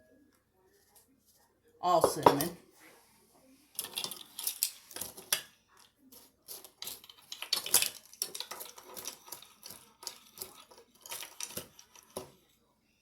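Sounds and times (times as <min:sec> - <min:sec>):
spoon stirring in a bowl: 0:01.8 - 0:02.6, 0:03.7 - 0:12.6
spoon clinking and scraping bowl: 0:03.8 - 0:12.5.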